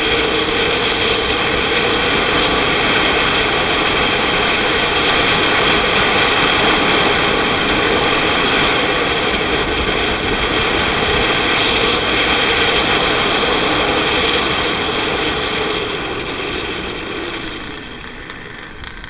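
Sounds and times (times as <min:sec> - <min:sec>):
wind on microphone: 0:00.0 - 0:19.0
motorcycle engine: 0:08.9 - 0:19.0.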